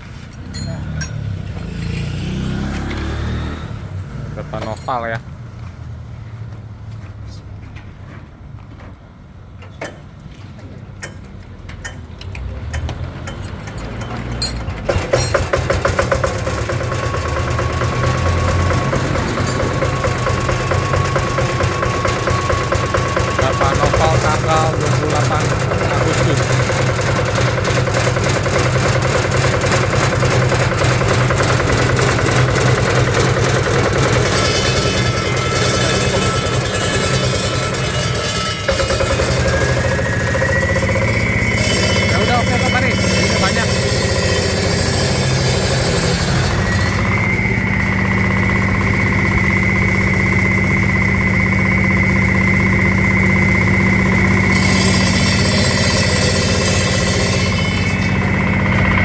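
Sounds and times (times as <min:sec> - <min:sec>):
cutting machine engine running: 0:00.0 - 0:05.2, 0:12.4 - 0:59.0
steady high whine: 0:29.6 - 0:59.0.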